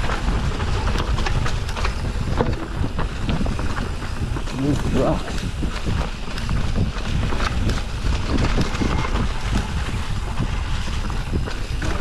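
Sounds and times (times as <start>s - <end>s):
bike knocking and rattling over rocks: 0.0s - 12.0s
wind rumbling on microphone: 0.0s - 12.0s.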